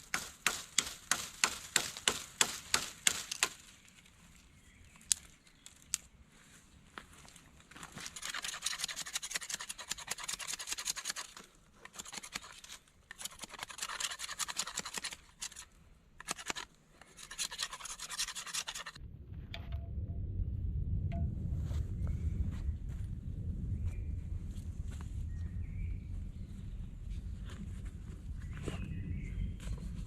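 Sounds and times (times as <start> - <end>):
rapid scratching and rasping: 8.0 - 19.0
low rumble: 19.0 - 30.0.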